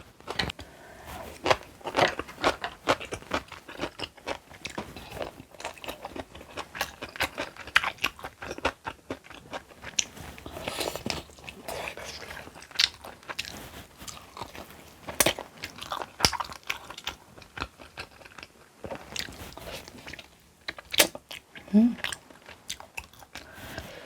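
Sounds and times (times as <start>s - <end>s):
crunchy food chewing: 0.0s - 24.0s.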